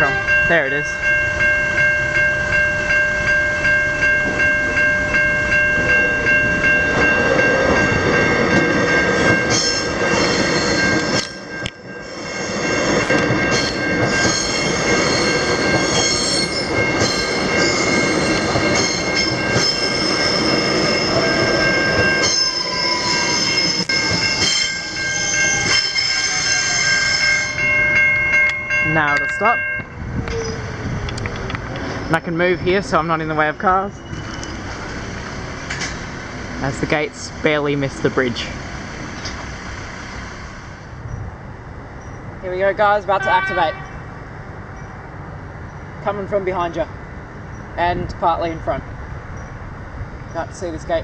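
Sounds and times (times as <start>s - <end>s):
level crossing bells ringing: 0.0s - 30.0s.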